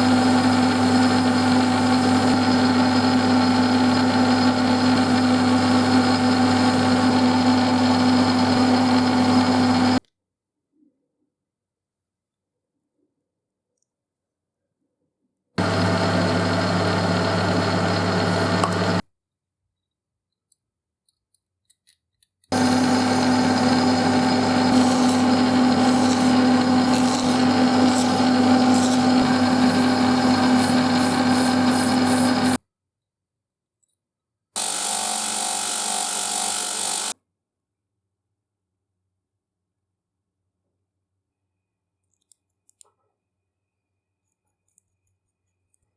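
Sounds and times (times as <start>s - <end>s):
power tool running: 0.0s - 10.0s, 15.6s - 19.0s, 22.5s - 32.6s, 34.6s - 37.2s.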